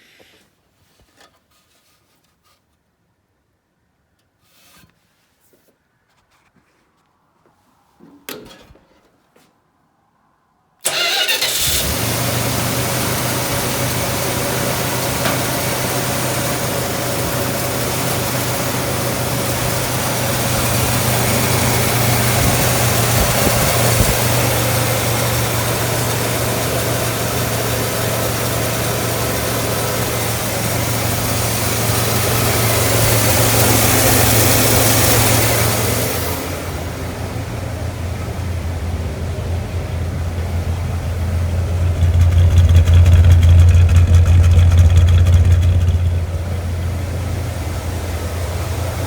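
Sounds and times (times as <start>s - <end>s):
car engine starting and idling: 10.8s - 49.0s.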